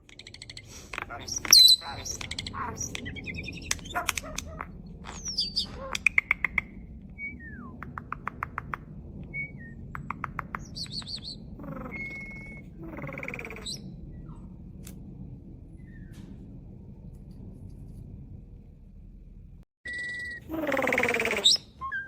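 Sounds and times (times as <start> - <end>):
starling singing: 0.1 - 7.9, 10.6 - 14.0, 19.9 - 22.0.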